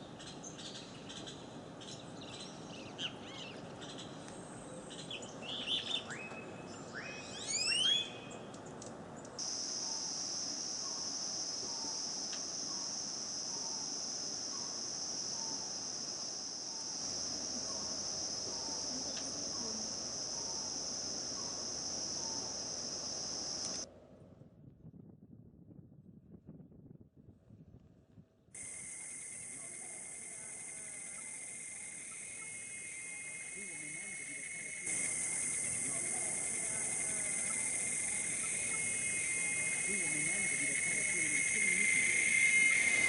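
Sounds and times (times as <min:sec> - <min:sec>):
birds whistling calls: 0:05.0 - 0:08.4
high insect drone: 0:09.4 - 0:23.9, 0:28.6 - 0:43.0.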